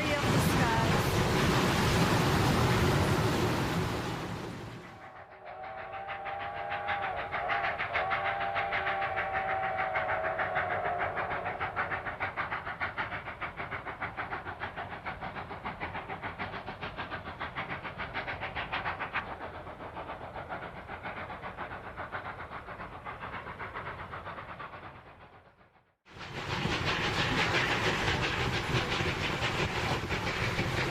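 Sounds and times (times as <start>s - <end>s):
train running rhythmically: 0.0s - 30.9s
steam locomotive whistle: 5.4s - 11.4s.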